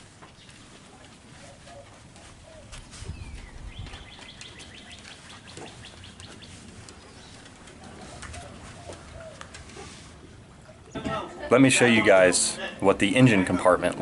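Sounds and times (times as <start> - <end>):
bird cooing: 1.4 - 2.8, 7.8 - 10.0.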